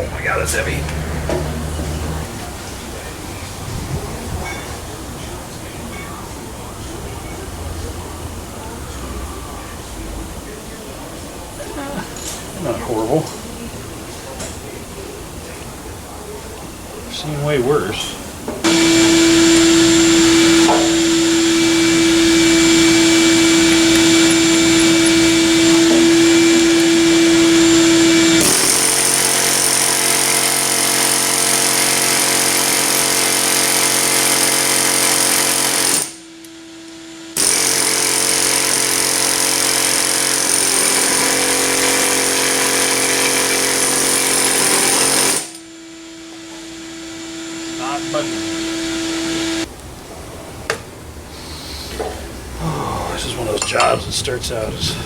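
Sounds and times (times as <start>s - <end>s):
power tool running: 0.0s - 3.1s, 18.6s - 49.7s.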